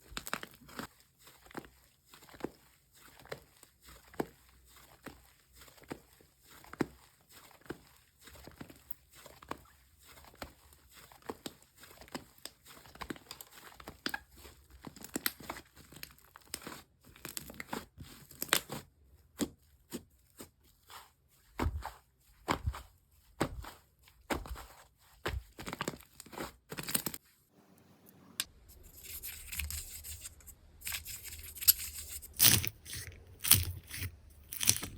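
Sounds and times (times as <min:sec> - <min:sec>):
hands squishing slime: 0:28.8 - 0:34.9.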